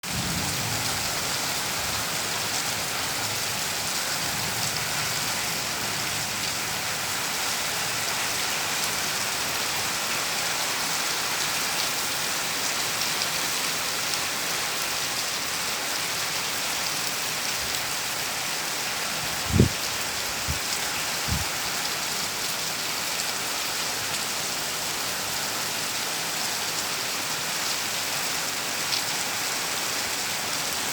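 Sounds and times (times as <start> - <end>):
heavy rain: 0.0 - 30.9.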